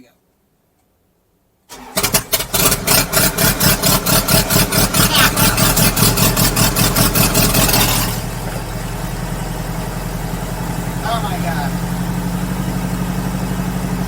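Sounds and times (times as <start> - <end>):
starter cranking: 1.7 - 9.4
helicopter piston engine running: 2.3 - 14.0.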